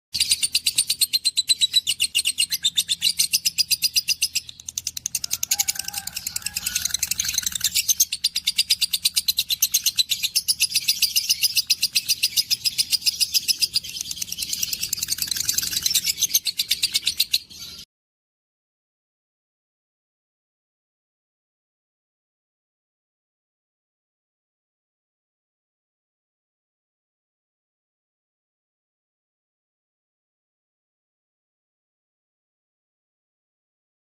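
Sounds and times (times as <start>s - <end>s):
birds chirping: 0.2s - 17.9s.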